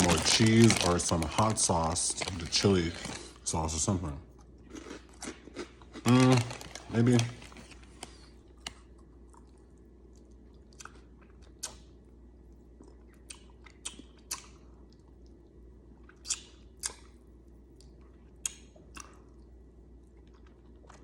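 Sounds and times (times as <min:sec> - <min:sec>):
person chewing crunchy chips: 0:00.0 - 0:11.9.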